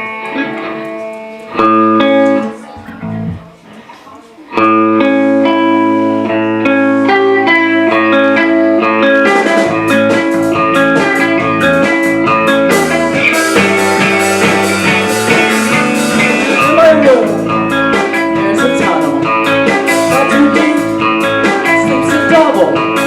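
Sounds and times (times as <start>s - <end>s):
electric guitar chords: 0.0s - 3.8s, 4.5s - 23.0s
rock drums: 4.6s - 23.0s.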